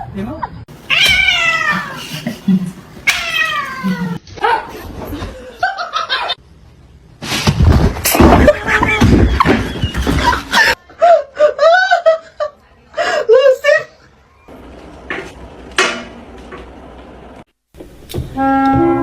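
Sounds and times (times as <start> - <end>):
cat yowling and meowing: 0.8 - 2.4, 3.0 - 4.2.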